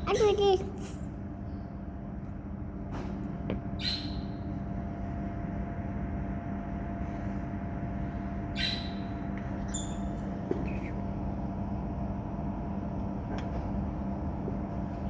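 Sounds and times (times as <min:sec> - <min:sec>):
bird squawking: 0:03.8 - 0:04.4, 0:08.6 - 0:09.1.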